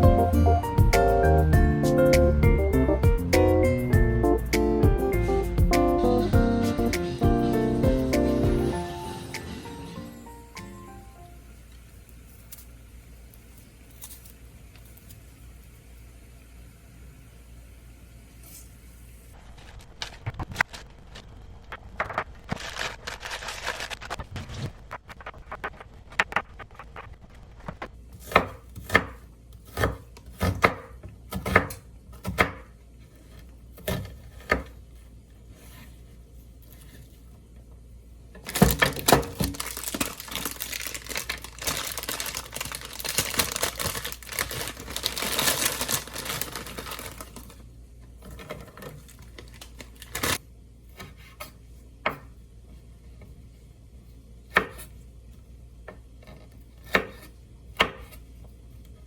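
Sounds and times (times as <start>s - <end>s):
rustling or crinkling: 13.4s - 15.1s, 19.4s - 28.0s, 38.4s - 50.4s.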